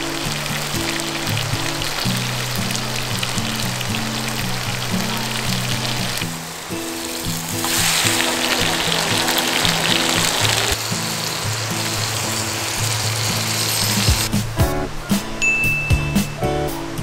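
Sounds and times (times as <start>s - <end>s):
food sizzling on griddle: 0.0s - 14.3s
background music: 6.9s - 17.0s.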